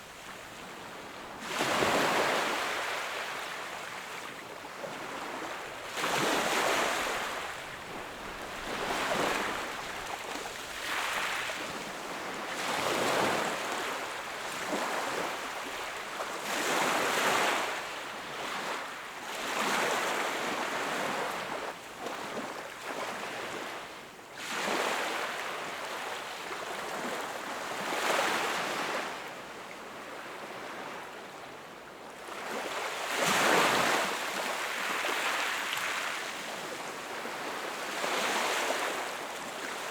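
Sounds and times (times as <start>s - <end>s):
sea waves breaking on shore: 1.3s - 17.8s.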